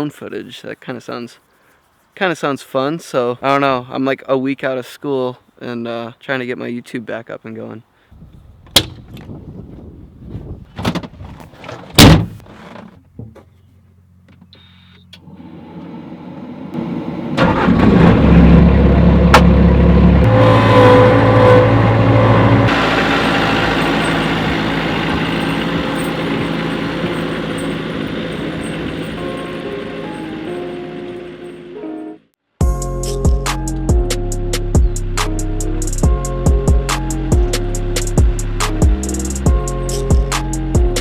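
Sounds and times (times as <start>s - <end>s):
clunks: 8.6s - 9.3s, 10.7s - 16.5s, 19.2s - 20.8s, 21.7s - 31.7s
skid steer engine starting and running: 14.5s - 32.0s, 33.5s - 41.0s.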